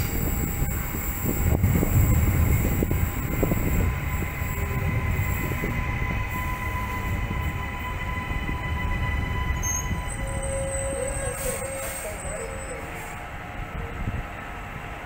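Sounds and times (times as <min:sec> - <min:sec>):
high whine or squeal: 0:00.0 - 0:13.2
train wheels rumbling on rail: 0:00.0 - 0:15.0.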